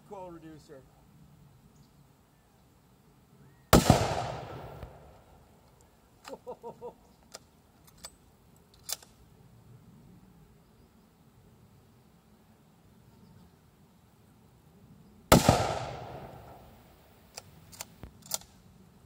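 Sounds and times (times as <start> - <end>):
rifle shot with echo: 3.7 - 5.3, 15.3 - 16.8.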